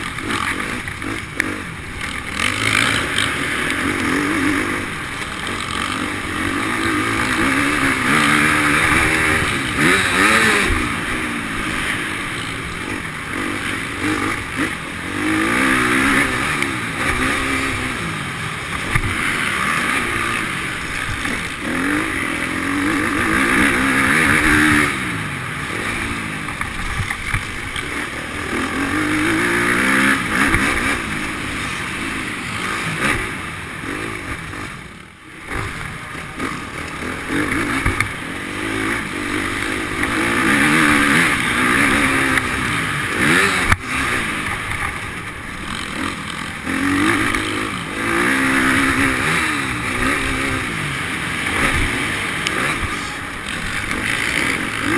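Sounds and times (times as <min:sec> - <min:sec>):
motocross motorcycle engines revving: 0:00.0 - 0:54.9.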